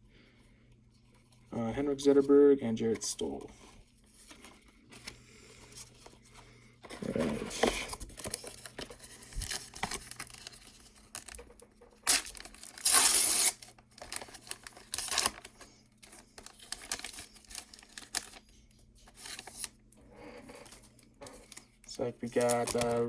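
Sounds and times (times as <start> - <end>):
wrapper crinkling: 7.0 - 19.8, 20.6 - 23.0
card pack wrapper ripping: 7.1 - 11.4, 12.0 - 18.5, 19.1 - 19.8, 21.4 - 23.0
cards shuffling: 20.6 - 23.0.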